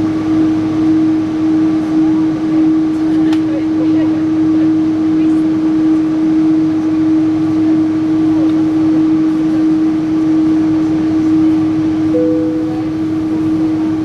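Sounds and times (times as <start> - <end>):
airplane cabin hum: 0.0 - 14.0
short high tone: 12.1 - 13.3
constant tone: 12.1 - 13.9.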